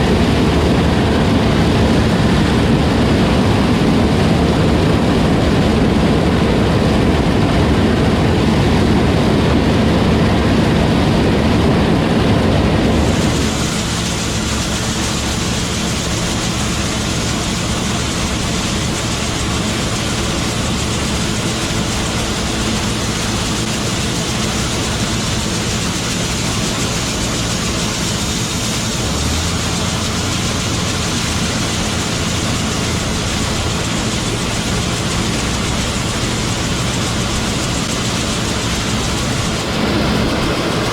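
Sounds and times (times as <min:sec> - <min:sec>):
heavy farm machinery engine drone: 0:00.0 - 0:40.9.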